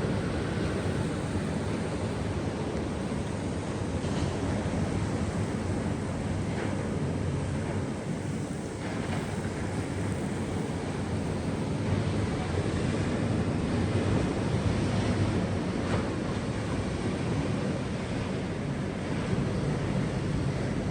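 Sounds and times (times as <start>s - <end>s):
sea waves washing on shore: 0.0s - 20.9s.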